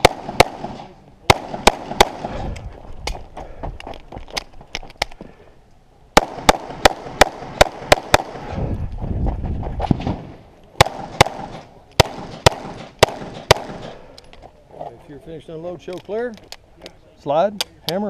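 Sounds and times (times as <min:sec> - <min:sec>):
pistol shots: 0:00.0 - 0:02.4, 0:06.2 - 0:08.4, 0:10.8 - 0:14.0.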